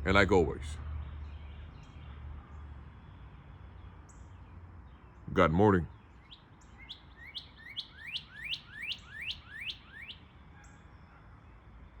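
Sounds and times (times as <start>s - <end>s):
songbird rising whistled notes: 6.8s - 10.2s.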